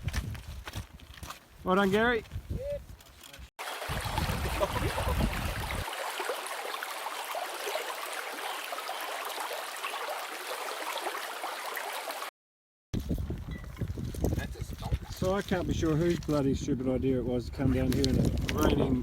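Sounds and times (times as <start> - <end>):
river water rushing: 3.6 - 12.3.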